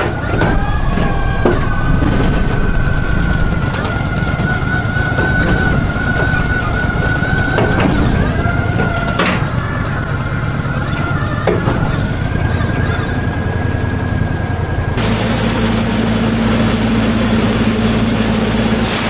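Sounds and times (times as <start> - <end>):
sawmill mechanical rumble: 0.0 - 19.0
high whine: 11.9 - 19.0.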